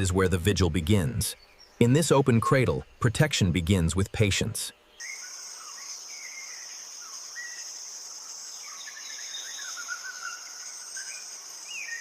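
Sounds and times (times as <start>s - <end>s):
warbling birdcalls: 0.0s - 12.0s
high-pitched insect drone: 5.0s - 12.0s.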